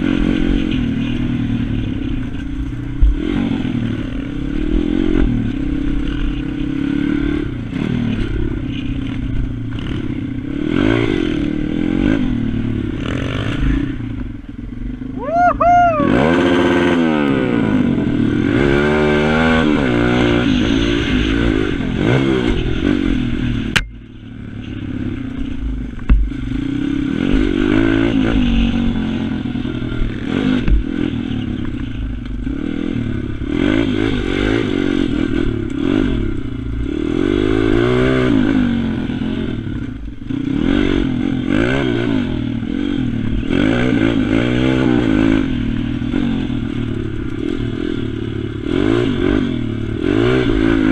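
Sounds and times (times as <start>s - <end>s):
pit bike engine revving: 0.0s - 50.9s.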